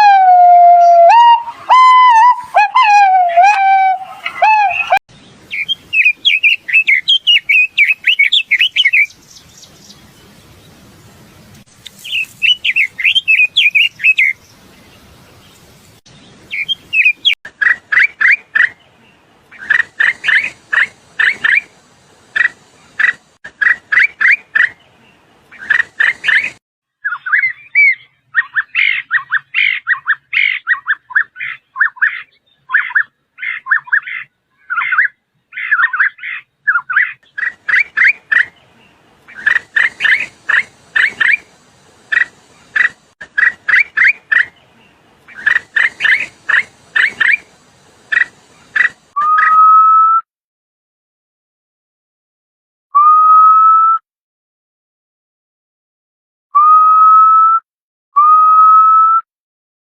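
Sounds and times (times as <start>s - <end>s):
songbirds chirping: 0.0s - 49.3s
background hiss: 5.2s - 23.4s, 37.3s - 49.2s.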